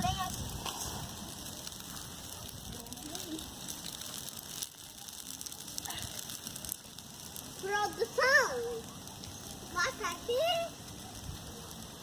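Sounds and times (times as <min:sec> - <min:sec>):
wood fire crackling and popping: 0:00.0 - 0:12.0.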